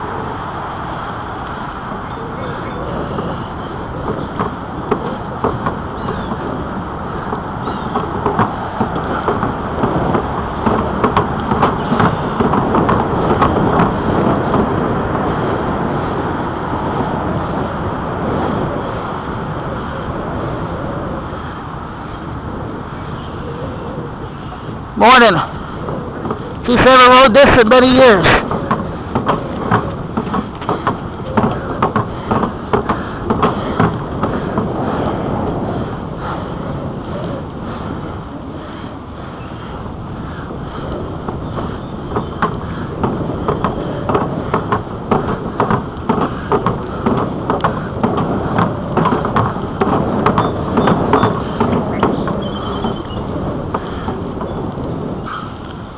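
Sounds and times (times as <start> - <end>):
bicycle tyres rolling: 0.0 - 55.9
wind on microphone: 0.0 - 55.9
bike clicks and knocks: 3.1 - 15.2, 28.2 - 35.0, 40.3 - 55.8
bicycle clicks and rattles: 4.0 - 15.2.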